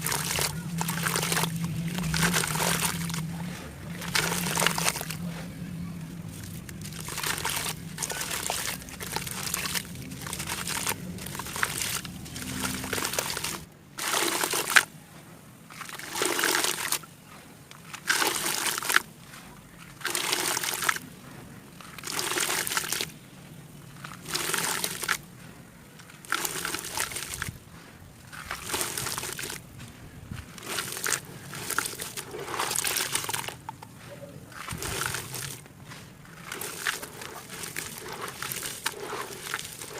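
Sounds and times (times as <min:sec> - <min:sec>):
crisp crackling: 0:00.0 - 0:14.9, 0:23.8 - 0:39.9
liquid noises: 0:00.0 - 0:39.9.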